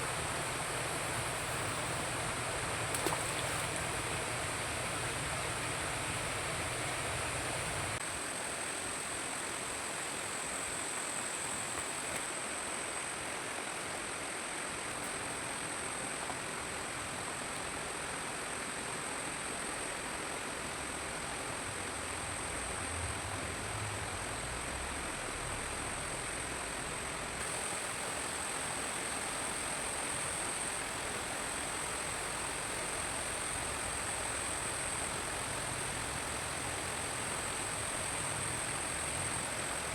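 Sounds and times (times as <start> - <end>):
even hiss: 0.0 - 16.5, 27.4 - 39.9.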